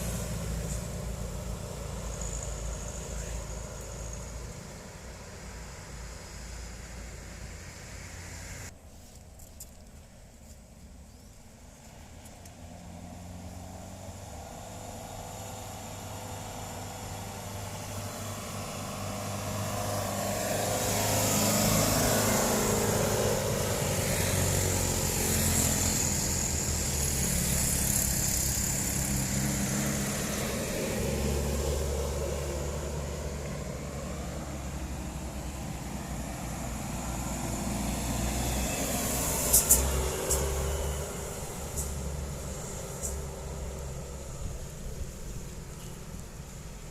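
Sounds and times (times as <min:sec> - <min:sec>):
truck engine running under load: 0:00.0 - 0:07.4, 0:12.6 - 0:46.9.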